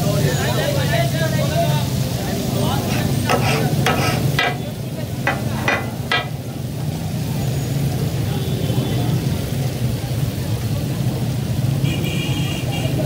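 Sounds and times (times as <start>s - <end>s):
chicken sizzling on a griddle: 0.0s - 13.0s
short sharp knocks: 2.9s - 4.7s, 5.3s - 6.4s.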